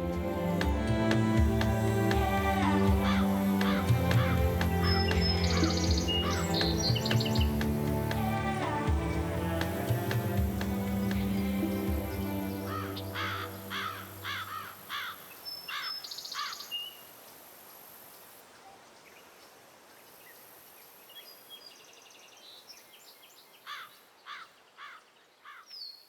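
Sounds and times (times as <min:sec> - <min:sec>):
bird calling: 0:00.0 - 0:17.0
faint outdoor hiss: 0:00.0 - 0:26.0
whistled bird trills: 0:04.2 - 0:07.6.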